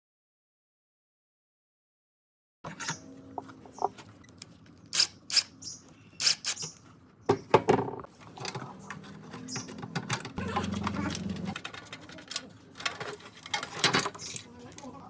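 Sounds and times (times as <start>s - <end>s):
tools clicking on metal: 4.4s - 5.5s.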